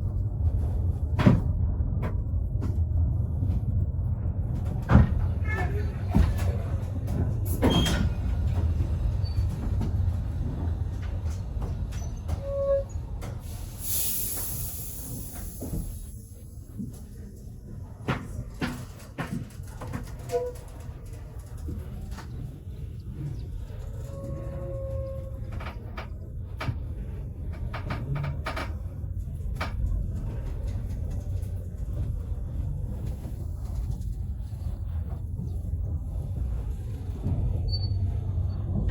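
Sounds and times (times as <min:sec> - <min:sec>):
train carriage rumbling on rails: 0:00.0 - 0:38.9
steam hiss: 0:13.5 - 0:16.2.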